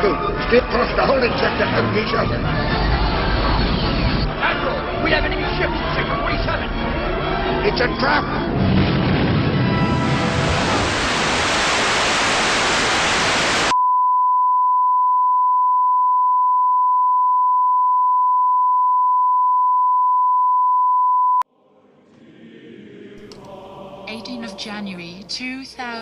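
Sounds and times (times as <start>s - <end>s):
hissing white-noise static: 10.3s - 13.7s
pure test-tone beep: 13.7s - 21.4s.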